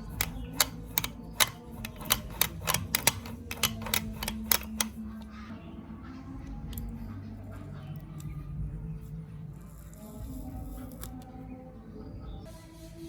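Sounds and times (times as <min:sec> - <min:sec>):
sharp clicks and taps: 0:00.0 - 0:05.0.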